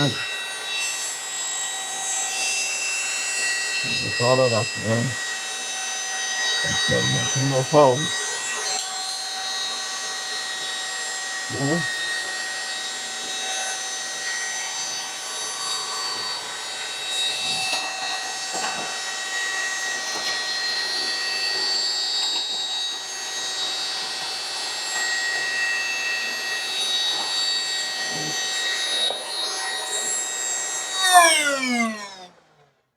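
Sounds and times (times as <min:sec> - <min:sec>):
vacuum motor whine: 0:00.0 - 0:32.8.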